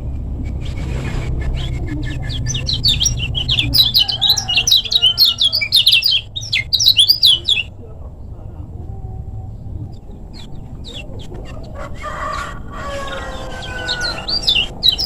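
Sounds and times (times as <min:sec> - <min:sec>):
low rumble: 0:00.0 - 0:11.5
bird chirping and trilling: 0:01.3 - 0:07.7, 0:10.3 - 0:15.0.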